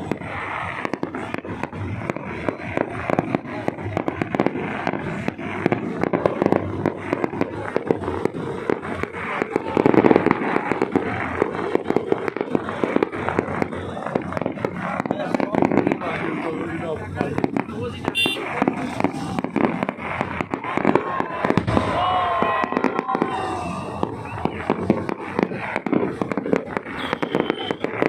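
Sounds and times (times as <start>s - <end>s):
fireworks cracking and popping: 0.0s - 28.0s.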